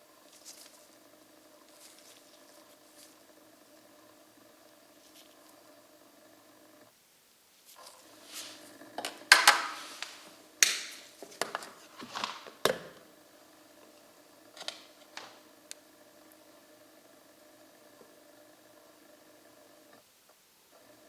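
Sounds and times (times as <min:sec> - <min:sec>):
low electric hum: 0:00.0 - 0:20.1.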